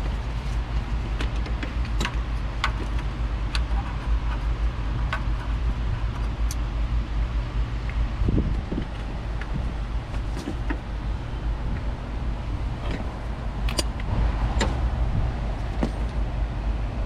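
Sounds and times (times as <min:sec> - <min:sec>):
low background rumble: 0:00.0 - 0:17.0
tools clicking and tapping: 0:13.7 - 0:14.1.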